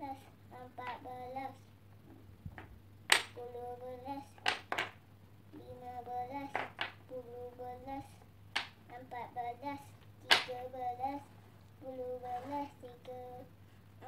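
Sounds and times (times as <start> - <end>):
wooden blocks clacking: 2.6 - 3.4, 4.4 - 5.0, 6.5 - 7.0, 8.5 - 8.8, 10.3 - 10.5.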